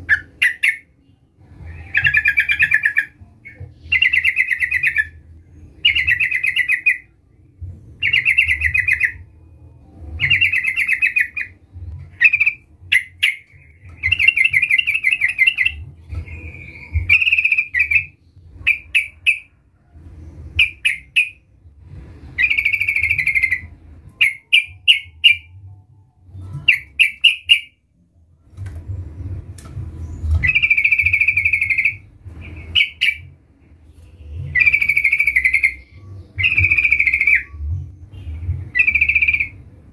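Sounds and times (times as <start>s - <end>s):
faint low rumble: 0.0s - 39.9s
bulbul singing trilled phrases: 22.4s - 25.6s, 34.4s - 39.6s.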